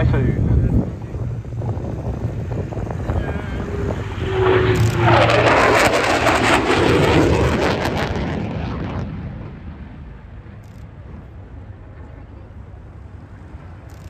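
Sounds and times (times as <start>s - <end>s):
jet passing with crackling roar: 0.0s - 14.0s.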